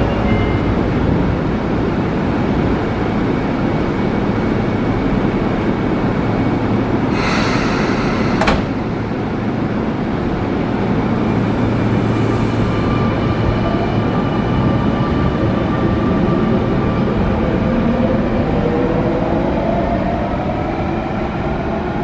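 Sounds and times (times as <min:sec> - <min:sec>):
electric train humming: 0:00.0 - 0:21.6
train doors closing with air hiss: 0:06.8 - 0:10.2.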